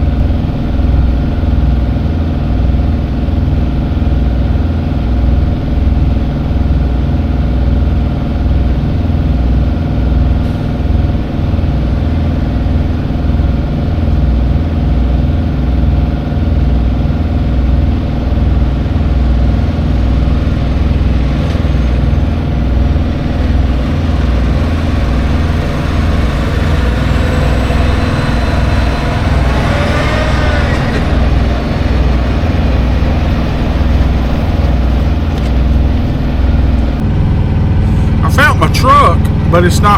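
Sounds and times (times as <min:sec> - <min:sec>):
vehicle engine idling: 0:00.0 - 0:39.9
wavering higher sound: 0:19.9 - 0:37.8.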